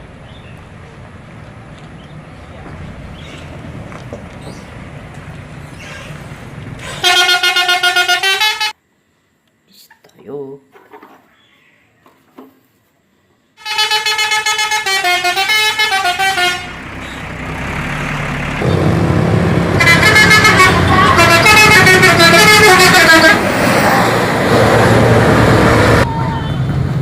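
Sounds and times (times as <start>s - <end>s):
low engine rumble: 0.0s - 7.0s, 15.2s - 27.0s
bus musical horn playing tune: 6.8s - 8.8s, 13.6s - 17.2s, 19.8s - 23.5s.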